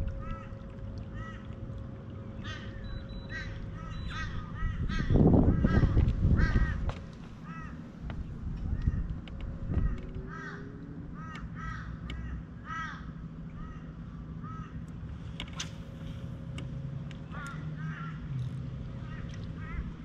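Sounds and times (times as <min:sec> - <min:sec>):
outboard motor humming: 0:00.0 - 0:20.0
birds calling: 0:02.2 - 0:14.9, 0:17.2 - 0:20.0.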